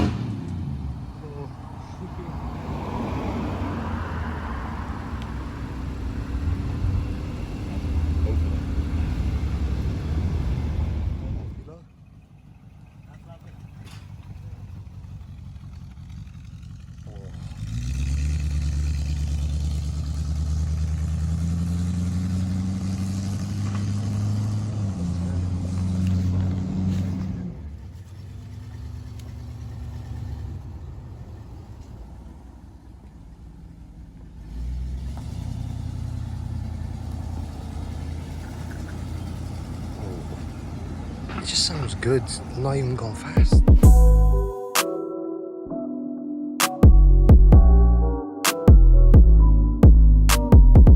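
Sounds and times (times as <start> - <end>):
car engine running at low revs: 4.7 - 44.5.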